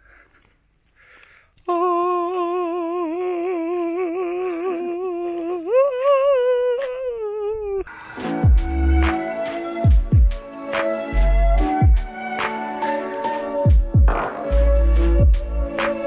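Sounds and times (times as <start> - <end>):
person humming: 1.6 - 9.2.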